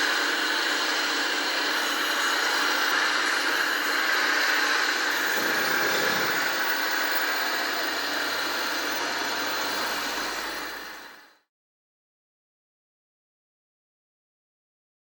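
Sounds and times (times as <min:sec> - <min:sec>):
small motors and gearing running: 0:00.0 - 0:11.4.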